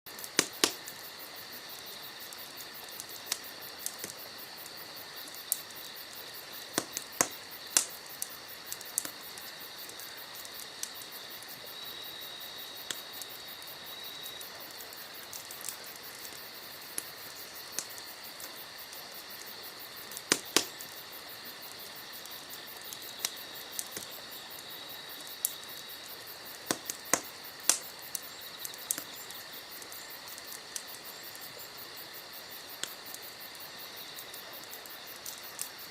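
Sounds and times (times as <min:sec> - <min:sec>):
campfire wood crackling: 0:00.1 - 0:35.9
sharp pops: 0:00.2 - 0:00.8, 0:06.7 - 0:08.0, 0:20.1 - 0:20.8, 0:26.6 - 0:27.9.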